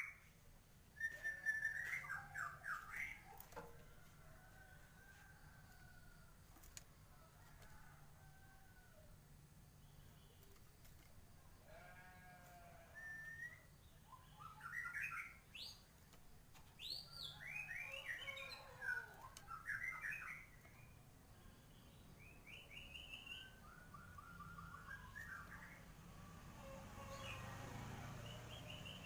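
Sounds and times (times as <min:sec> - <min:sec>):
bird singing whistled phrases: 0:01.0 - 0:03.2, 0:13.0 - 0:15.4, 0:22.5 - 0:25.7.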